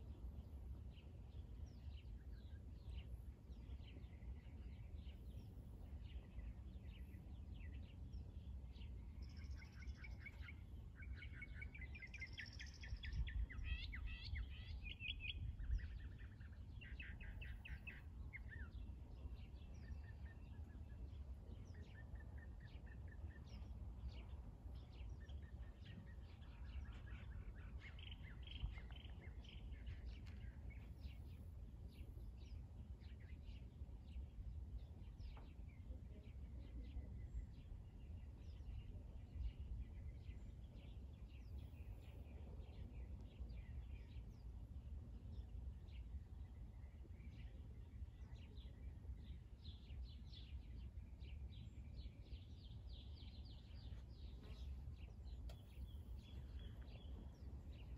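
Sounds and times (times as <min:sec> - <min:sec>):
low steady rumble: 0:22.6 - 0:57.9
birds chirping and trilling: 0:45.3 - 0:57.9.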